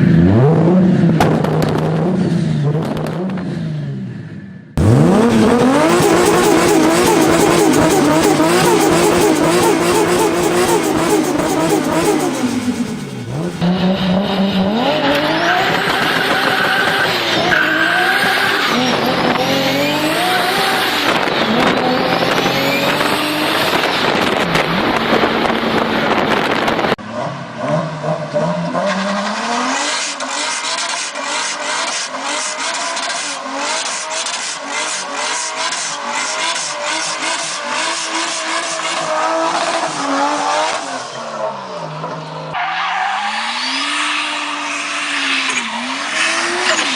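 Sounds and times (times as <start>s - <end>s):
car engine revving: 4.8s - 46.9s
exhaust pops crackling: 20.1s - 27.0s.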